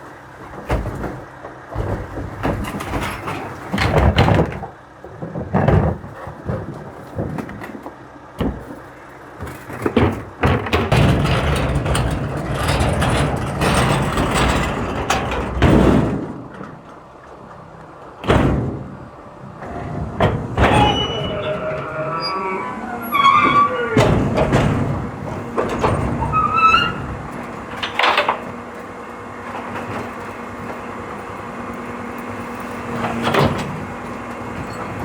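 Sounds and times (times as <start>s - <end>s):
garbage truck engine rumble: 0.0s - 35.0s
loud bangs and rattles: 10.0s - 16.8s, 18.2s - 28.7s.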